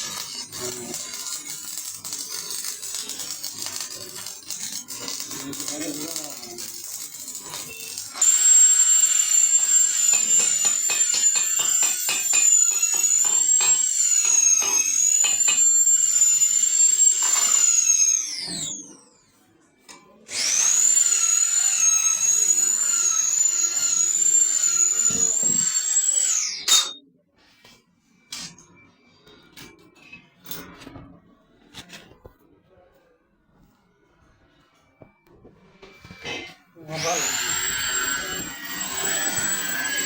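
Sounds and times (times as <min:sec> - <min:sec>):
power tool whining: 0:00.0 - 0:19.1, 0:20.3 - 0:27.0, 0:35.9 - 0:40.0.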